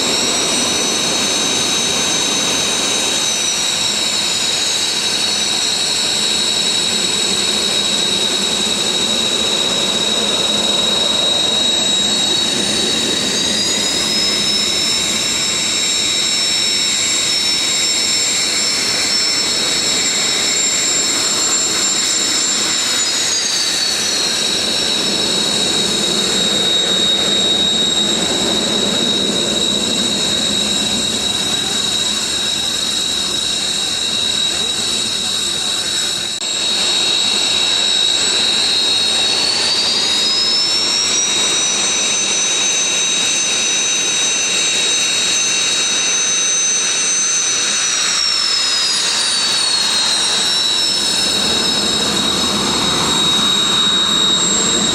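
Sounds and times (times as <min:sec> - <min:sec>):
jet engine spooling up and down: 0:00.0 - 0:54.9
jet engines whining: 0:00.0 - 0:54.9.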